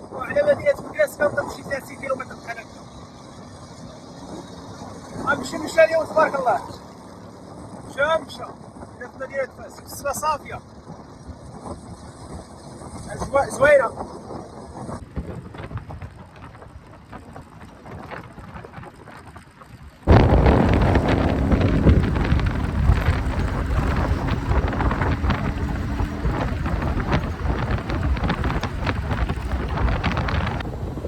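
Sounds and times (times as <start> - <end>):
moving car: 0.0 - 31.0
road rumble: 0.0 - 31.0
wind buffeting microphone: 9.8 - 31.0.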